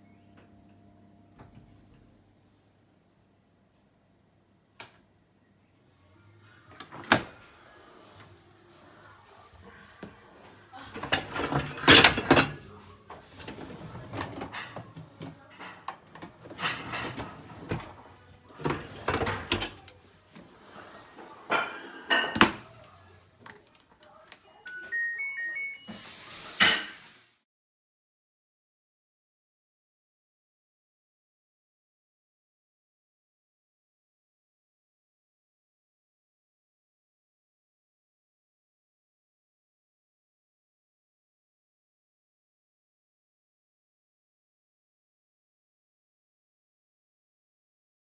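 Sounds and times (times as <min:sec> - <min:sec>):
dishwasher knocks and clattering: 0:10.9 - 0:12.6
rising electronic beeps: 0:24.7 - 0:26.1.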